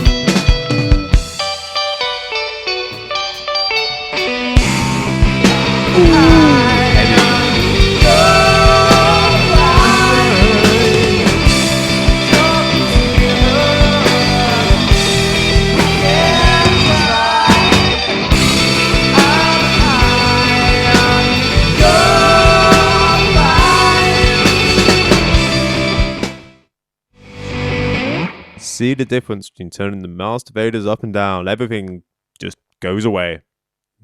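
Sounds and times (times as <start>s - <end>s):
steady drum beat: 0.0s - 1.5s, 4.6s - 26.3s
bending lead melody: 0.0s - 26.4s
rock band playing: 0.0s - 26.5s, 27.4s - 28.6s.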